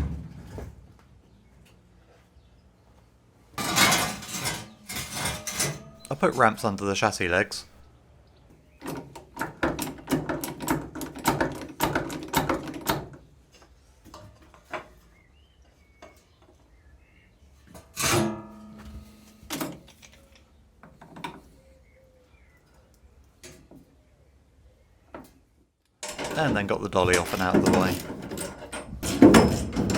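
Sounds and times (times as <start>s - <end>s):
metal rattling knocks: 27.4s - 29.9s.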